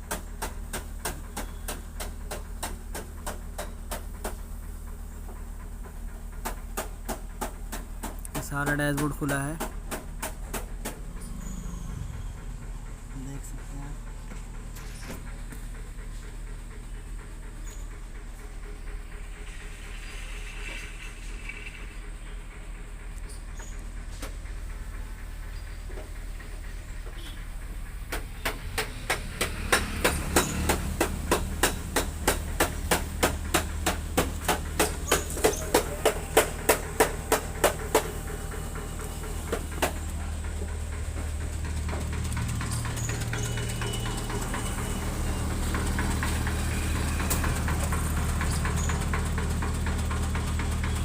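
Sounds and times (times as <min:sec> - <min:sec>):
steady low hum: 0:09.6 - 0:51.0
fast sharp knocks: 0:28.1 - 0:38.2.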